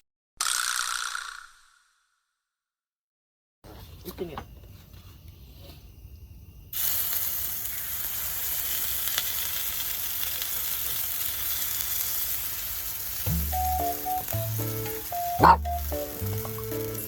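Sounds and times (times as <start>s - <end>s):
batter sizzling on a griddle: 6.6s - 17.0s
background music: 13.3s - 17.0s.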